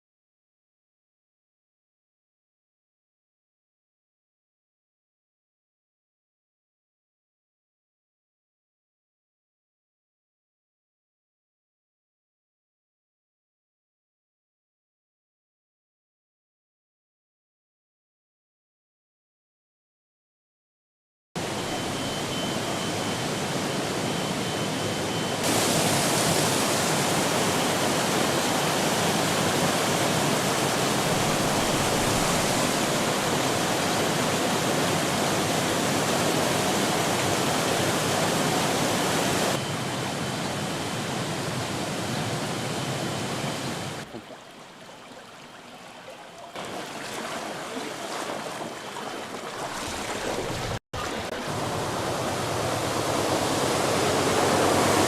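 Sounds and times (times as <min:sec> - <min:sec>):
rushing floodwater: 0:25.4 - 0:39.6, 0:44.0 - 0:55.0.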